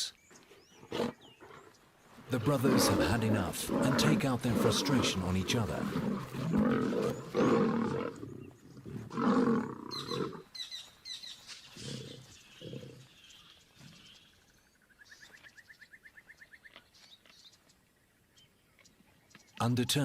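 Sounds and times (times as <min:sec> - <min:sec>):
lions snarling and roaring: 0:00.5 - 0:10.5, 0:11.8 - 0:13.2
lion growls: 0:00.7 - 0:10.4.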